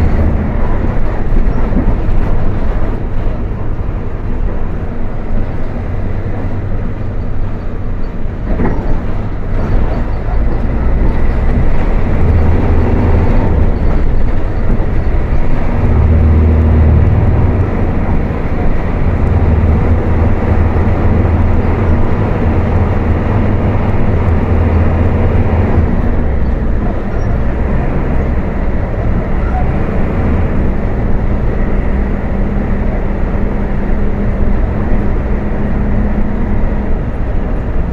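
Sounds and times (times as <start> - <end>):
diesel bus engine at high revs: 0.0 - 37.9.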